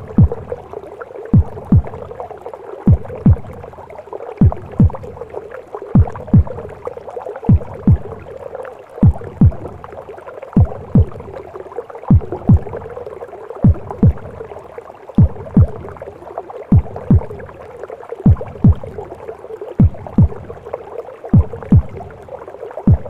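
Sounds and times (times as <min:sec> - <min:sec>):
heartbeat thumps: 0:00.0 - 0:00.6, 0:01.3 - 0:02.2, 0:02.9 - 0:03.8, 0:04.4 - 0:05.3, 0:06.0 - 0:08.4, 0:09.0 - 0:10.0, 0:10.6 - 0:11.4, 0:12.1 - 0:13.0, 0:13.6 - 0:14.5, 0:15.2 - 0:16.1, 0:16.7 - 0:17.6, 0:18.2 - 0:19.2, 0:19.8 - 0:20.7, 0:21.3 - 0:22.2.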